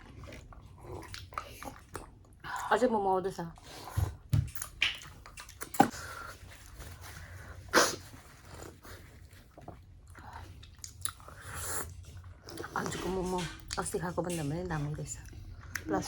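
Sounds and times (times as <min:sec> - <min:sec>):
person chewing food: 0:00.0 - 0:02.6, 0:04.0 - 0:07.6, 0:08.2 - 0:12.8
mouth clicks and smacks: 0:04.4 - 0:05.9
wet mouth noises: 0:04.5 - 0:06.0.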